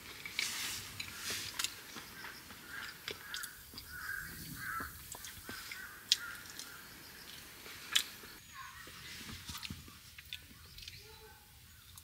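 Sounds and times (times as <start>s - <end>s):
bird calling: 1.1s - 9.7s.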